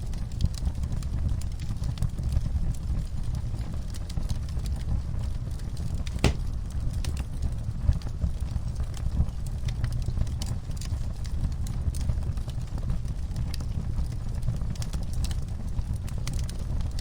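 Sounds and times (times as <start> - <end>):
low rumble of flames: 0.1 - 17.0
fire crackles and pops: 6.0 - 7.2, 8.0 - 17.0.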